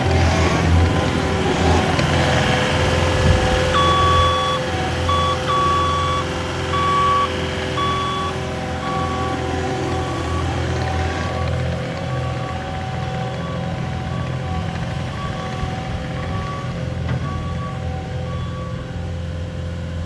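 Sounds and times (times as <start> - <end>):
diesel engine running: 0.0 - 20.0
backup alarm beeping: 3.4 - 19.0.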